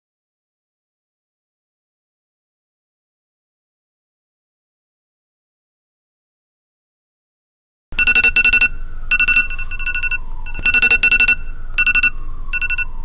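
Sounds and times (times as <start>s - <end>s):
alarm clock beeping: 8.0s - 12.9s
faint downward sliding tone: 8.0s - 13.0s.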